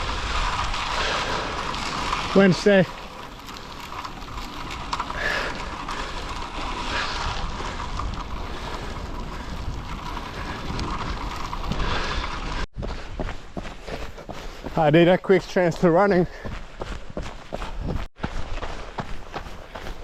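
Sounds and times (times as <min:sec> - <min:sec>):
wind buffeting microphone: 0:03.0 - 0:14.8, 0:16.4 - 0:20.0.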